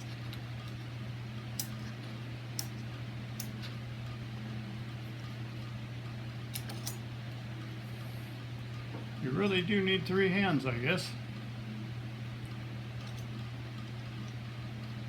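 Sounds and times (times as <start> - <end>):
low mechanical hum: 0.0 - 15.0
lock parts clicking: 6.5 - 7.0.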